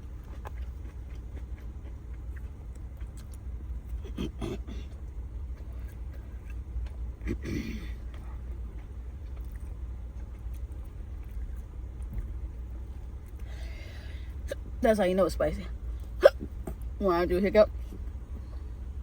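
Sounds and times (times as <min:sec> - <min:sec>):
person hiccuping: 0:04.0 - 0:04.9, 0:07.2 - 0:08.0, 0:16.2 - 0:16.6.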